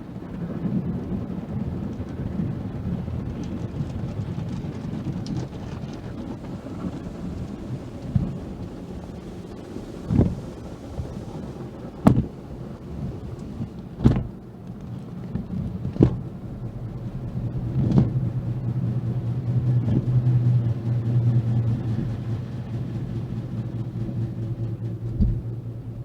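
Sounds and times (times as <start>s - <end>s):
low rumble: 0.0s - 26.0s
sharp thumps: 25.0s - 25.6s.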